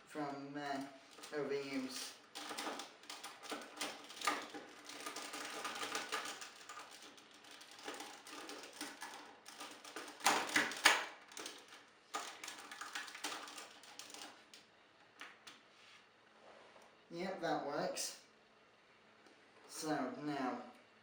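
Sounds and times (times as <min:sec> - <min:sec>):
plastic toy parts clicking: 0:02.2 - 0:14.6.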